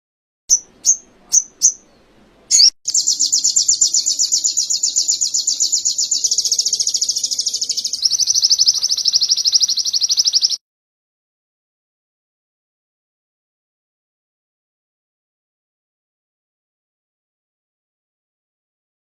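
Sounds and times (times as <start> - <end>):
bird chirping and trilling: 0.5 - 10.6.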